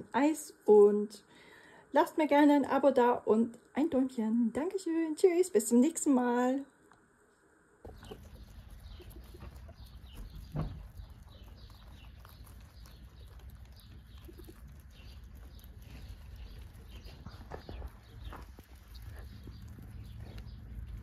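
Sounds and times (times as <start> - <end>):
small birds chirping: 7.8 - 21.0.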